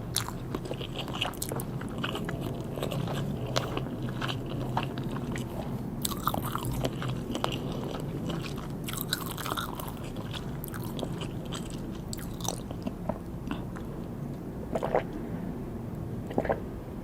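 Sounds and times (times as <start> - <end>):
chewing and biting food: 0.0 - 15.3, 16.2 - 16.7
wet mouth sounds: 14.7 - 15.2, 16.3 - 16.7.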